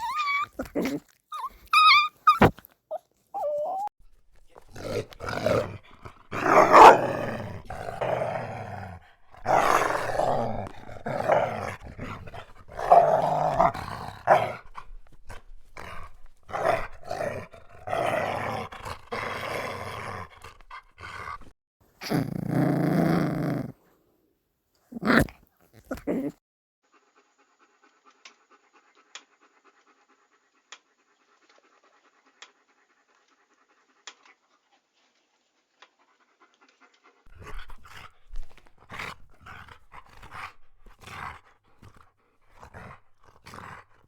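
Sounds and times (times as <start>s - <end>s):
dog growling: 0.0s - 2.6s, 3.4s - 23.8s, 24.9s - 26.4s, 37.3s - 44.0s
dog whining: 0.0s - 3.9s, 6.4s - 7.4s.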